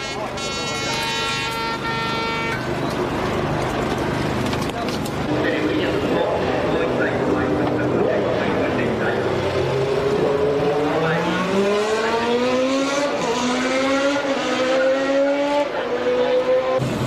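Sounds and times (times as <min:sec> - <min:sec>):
race car engine accelerating: 0:05.2 - 0:17.0.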